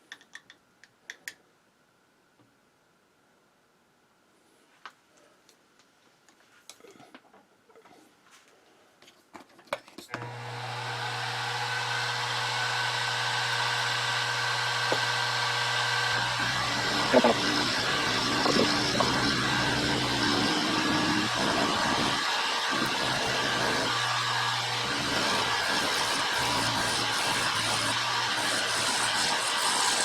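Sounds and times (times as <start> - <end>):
cutter cutting metal: 10.2 - 30.0
milling machine motor humming: 10.2 - 30.0.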